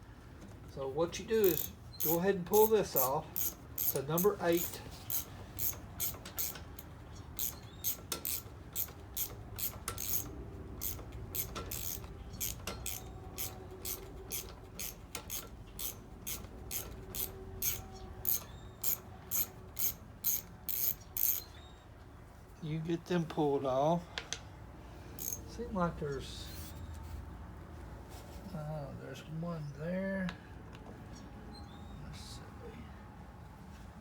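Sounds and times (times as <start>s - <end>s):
socket ratchet clicking: 1.4s - 21.5s, 25.2s - 25.5s.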